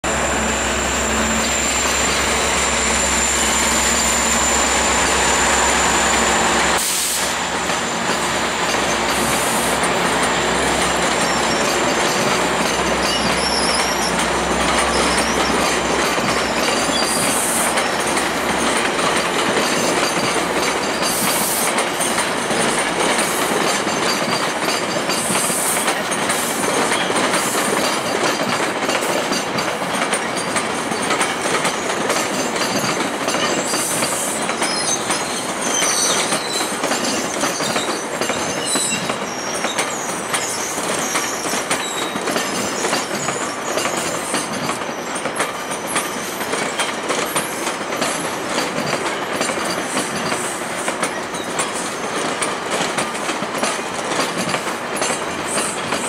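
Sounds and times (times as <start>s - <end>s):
train wheels rumbling on rails: 0.0s - 56.0s
high-pitched wheel squeals: 0.2s - 6.7s, 10.6s - 18.1s, 33.6s - 44.5s.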